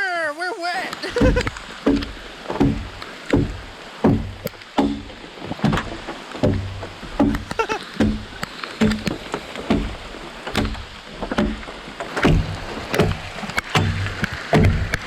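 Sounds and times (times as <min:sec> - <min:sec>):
hand saw cutting wood: 0:00.9 - 0:10.8.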